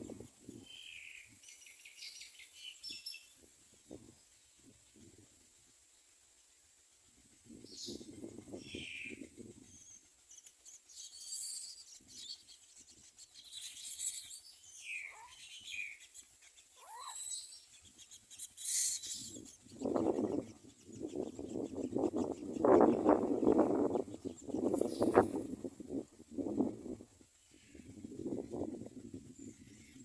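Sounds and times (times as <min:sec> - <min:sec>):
myna bird harsh calls: 0:13.6 - 0:20.5.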